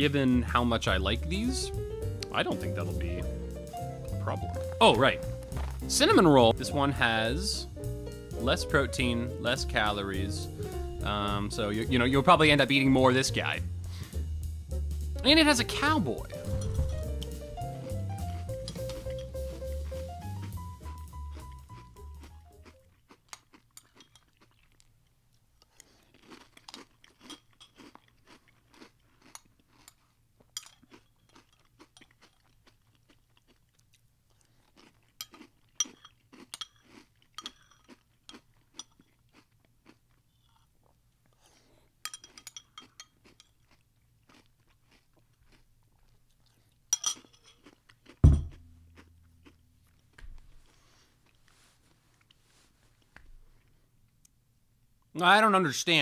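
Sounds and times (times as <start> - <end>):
crunchy cereal being chewed: 17.2 - 48.2, 48.9 - 53.8
heavy thump: 48.2 - 48.6.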